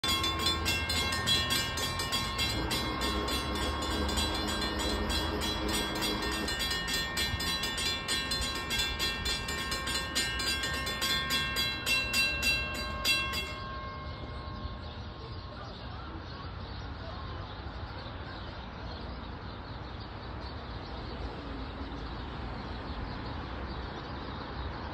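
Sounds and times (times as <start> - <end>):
train wheels clacking on track: 0.0 - 13.6.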